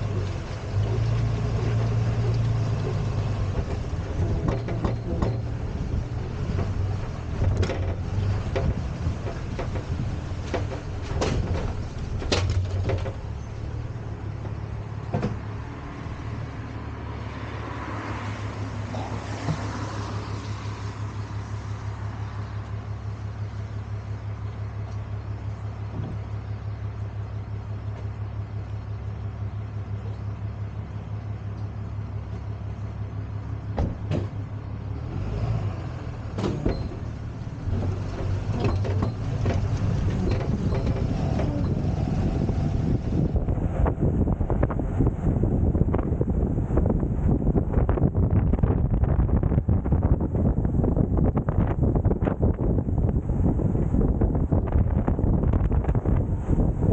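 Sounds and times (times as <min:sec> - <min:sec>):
tow truck engine running: 0:00.0 - 0:17.2, 0:18.4 - 0:56.9
metal clanks and knocks: 0:03.4 - 0:13.5, 0:36.4 - 0:41.8.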